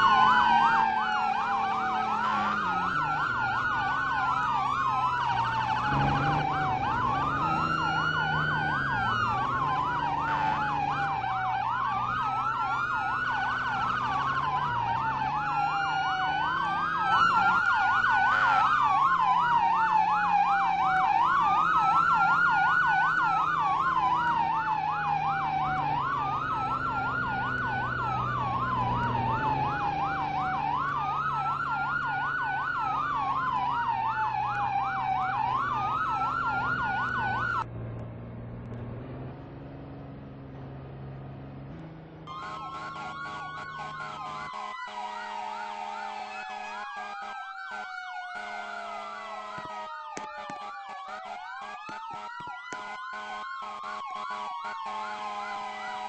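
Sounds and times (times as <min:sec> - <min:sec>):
siren wail: 0:00.0 - 0:37.7, 0:41.6 - 0:56.0
siren yelp: 0:00.0 - 0:37.7, 0:42.2 - 0:56.0
low engine hum: 0:00.0 - 0:42.3.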